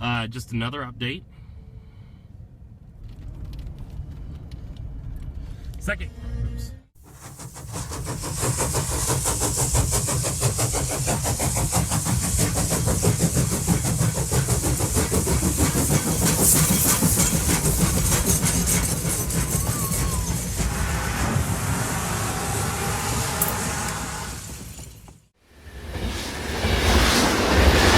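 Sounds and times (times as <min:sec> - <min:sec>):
road noise: 0:20.4 - 0:27.9.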